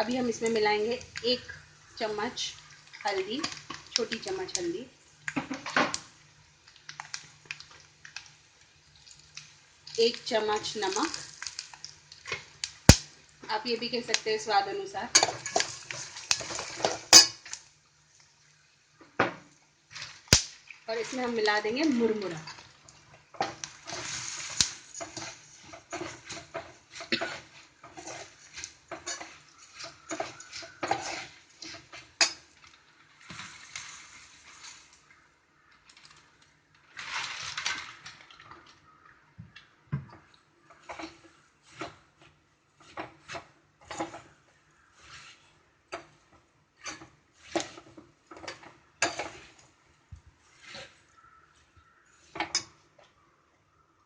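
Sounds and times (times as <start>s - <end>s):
dry rustling of puffed rice: 6.0s - 18.6s, 19.9s - 39.2s, 40.6s - 52.4s
metal spoon scraping a pan: 15.1s - 17.6s, 23.4s - 32.6s, 40.7s - 42.2s, 42.8s - 49.8s, 50.4s - 51.2s.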